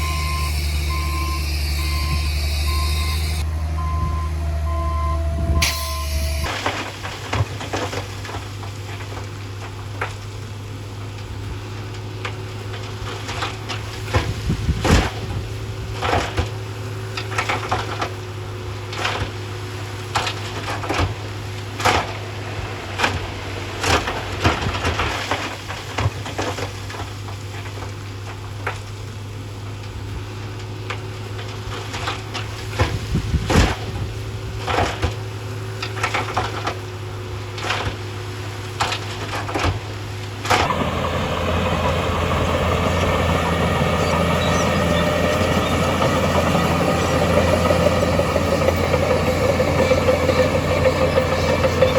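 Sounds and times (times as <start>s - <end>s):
heavy machinery engine hum: 0.0s - 8.8s, 40.3s - 51.9s.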